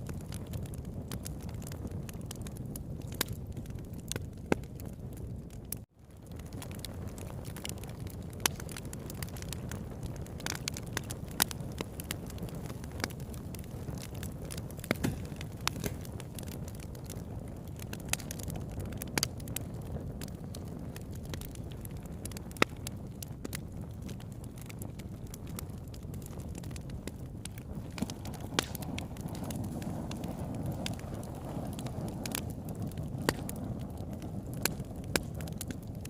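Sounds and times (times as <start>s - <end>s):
campfire crackling and popping: 0.0s - 36.0s
fire low rush: 23.8s - 36.0s.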